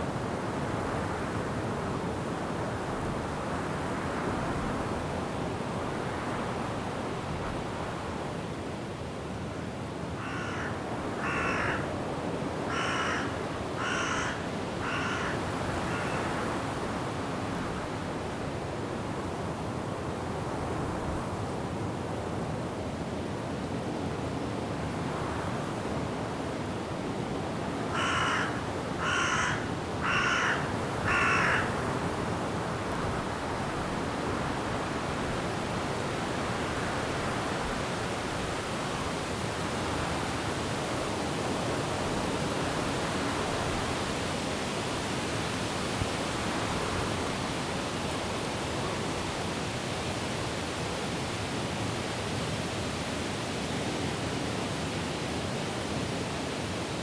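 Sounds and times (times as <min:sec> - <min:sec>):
wind and rain through trees: 0:00.0 - 0:57.0
bird calling: 0:28.0 - 0:31.7.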